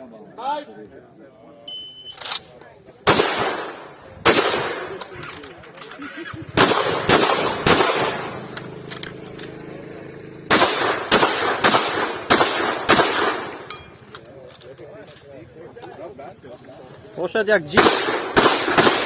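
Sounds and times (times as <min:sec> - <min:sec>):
shotgun shots: 0:03.0 - 0:05.8, 0:06.5 - 0:08.8, 0:10.5 - 0:13.7, 0:17.7 - 0:19.0.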